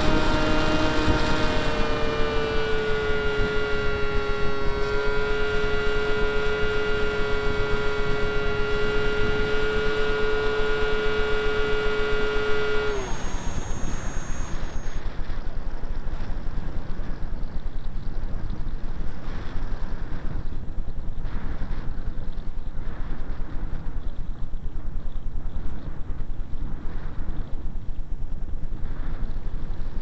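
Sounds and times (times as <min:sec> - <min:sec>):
electric motor and propeller whine: 0:00.0 - 0:17.6
wind rushing over microphone: 0:00.0 - 0:30.0.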